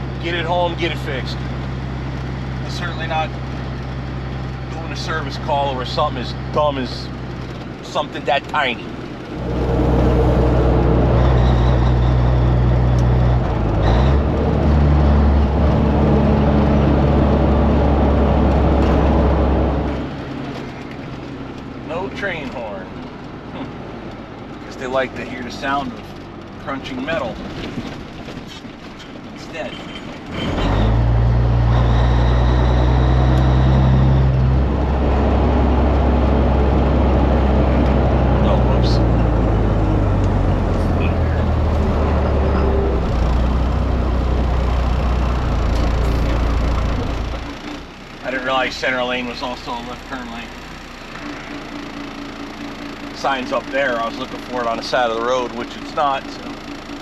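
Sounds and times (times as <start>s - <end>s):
truck diesel engine under load: 0.0s - 57.0s.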